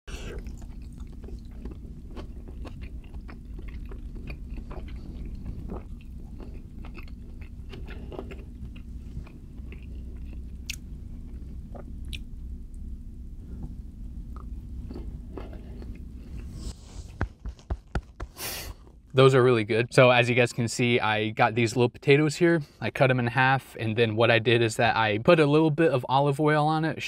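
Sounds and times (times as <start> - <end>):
person chewing food: 0.1 - 12.3, 13.6 - 19.1
steady low hum: 0.1 - 27.0.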